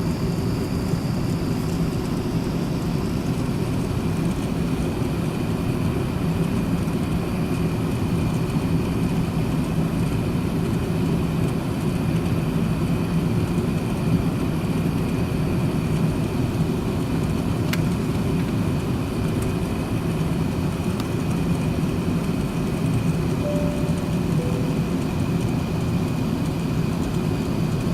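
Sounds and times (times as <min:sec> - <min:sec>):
airliner cabin hum: 0:22.7 - 0:26.5
faint high whine: 0:23.3 - 0:26.1.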